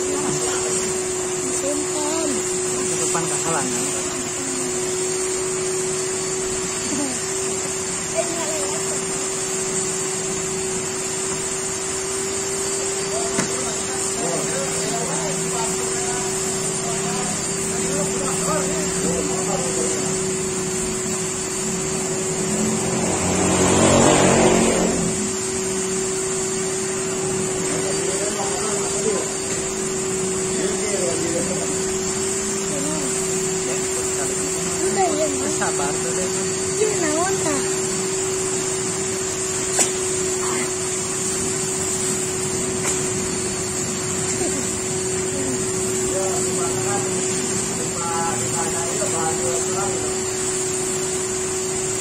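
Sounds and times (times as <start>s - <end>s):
steady machine hum: 0.0s - 52.0s
vehicle engine passing by: 22.3s - 25.6s.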